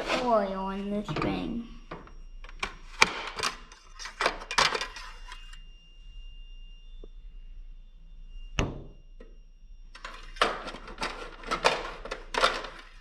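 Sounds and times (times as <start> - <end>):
scraping and rubbing: 0.0 - 0.6.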